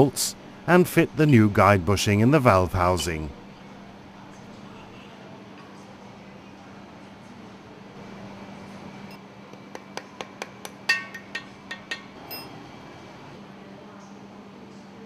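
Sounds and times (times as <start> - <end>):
metal tools clinking: 12.2 - 12.5.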